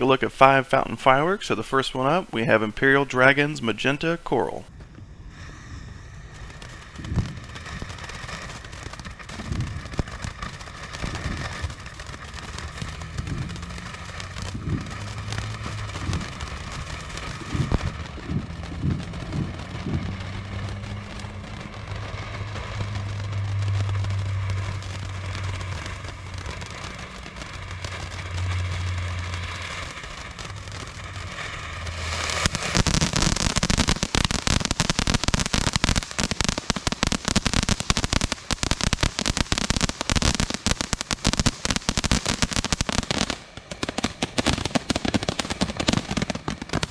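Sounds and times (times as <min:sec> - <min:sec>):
firework hissing and crackling: 0:00.0 - 0:46.9.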